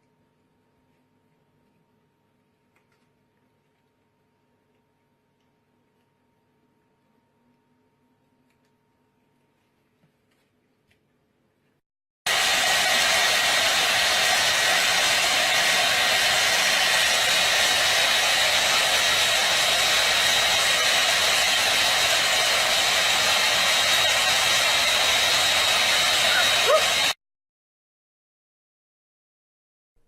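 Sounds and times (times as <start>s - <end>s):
blower motor rushing air: 12.3s - 27.2s
thin high whine: 12.3s - 27.2s.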